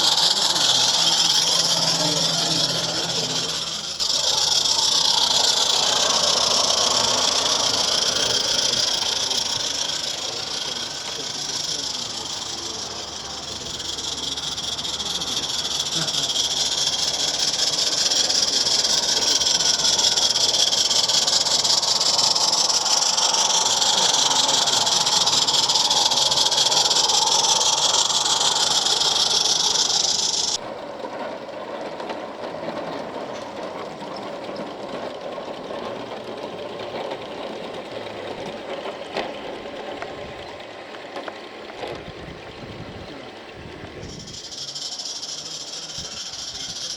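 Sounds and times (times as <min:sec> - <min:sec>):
steam hissing loudly: 0:00.0 - 0:30.6, 0:43.7 - 0:46.9
locomotive running sounds: 0:00.0 - 0:46.9.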